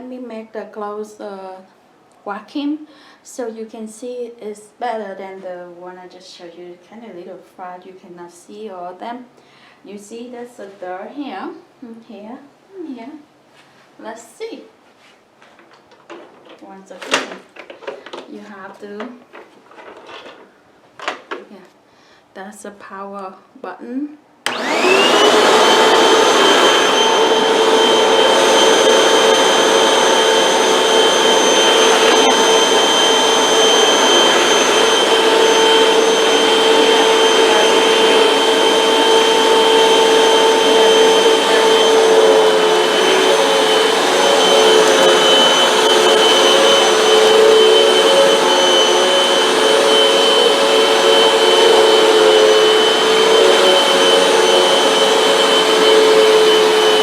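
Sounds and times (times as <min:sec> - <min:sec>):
vacuum cleaner motor whining: 0:24.5 - 0:57.0.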